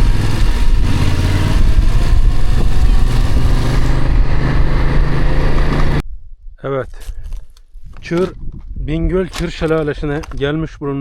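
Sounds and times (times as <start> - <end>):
motorcycle engine climbing: 0.0 - 6.0.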